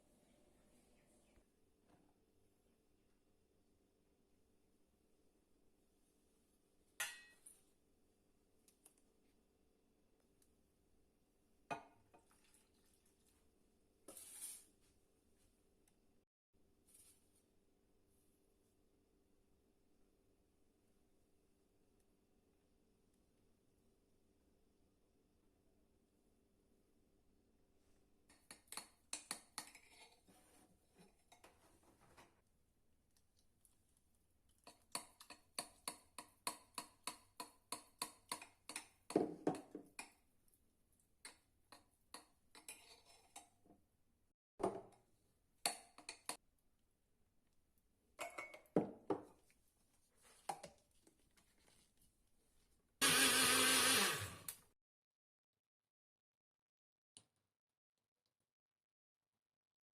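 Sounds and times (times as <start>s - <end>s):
spoon stirring batter in a bowl: 11.8s - 14.9s, 27.8s - 32.5s, 33.1s - 43.8s, 44.9s - 46.5s, 48.2s - 52.7s
electric blender running: 53.0s - 54.6s.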